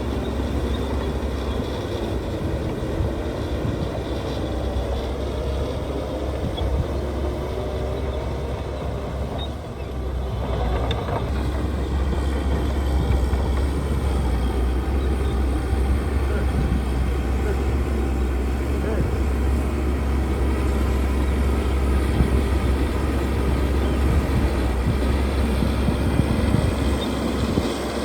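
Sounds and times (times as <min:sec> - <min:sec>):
diesel machinery engine drone: 0:00.0 - 0:28.0.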